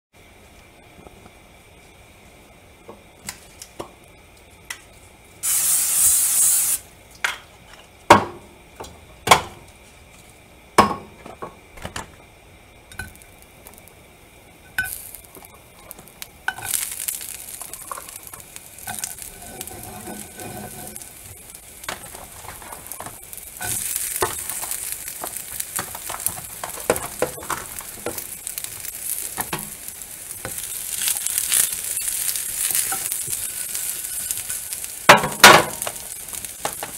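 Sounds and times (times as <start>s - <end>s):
food sizzling in a frying pan: 3.0s - 7.6s, 12.7s - 36.9s
loud hiss: 5.4s - 7.0s.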